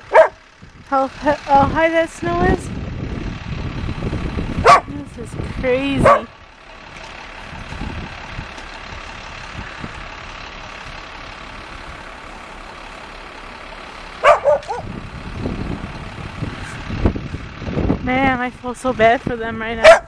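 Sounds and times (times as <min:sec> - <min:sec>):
vehicle engine running: 0:00.0 - 0:20.0
dog barking: 0:00.1 - 0:00.4, 0:04.6 - 0:04.9, 0:06.0 - 0:06.3, 0:14.2 - 0:14.9.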